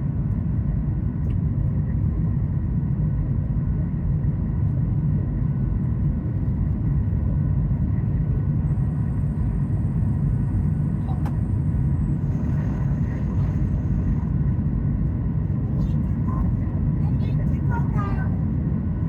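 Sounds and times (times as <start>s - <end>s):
airplane cabin engine rumble: 0.0s - 19.0s
faint steady whine: 5.8s - 19.0s.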